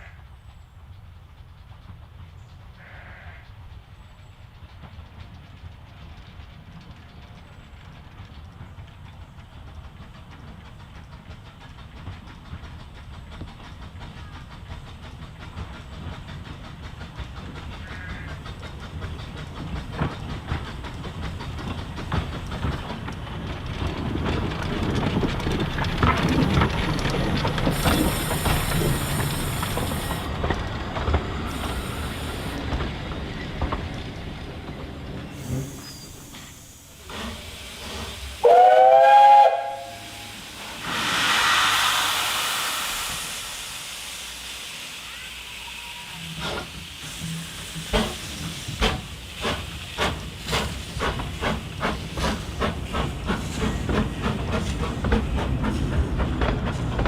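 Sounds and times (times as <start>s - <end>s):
steam train running: 0.0s - 57.0s
carriages rattling: 18.5s - 36.2s
high hissing steam: 27.5s - 57.0s.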